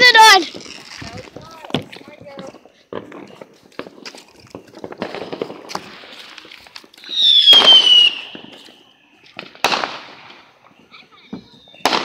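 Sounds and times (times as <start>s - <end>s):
firework crack: 0.0s - 12.0s
firework hiss: 2.7s - 10.9s
whistling firework: 4.3s - 12.0s.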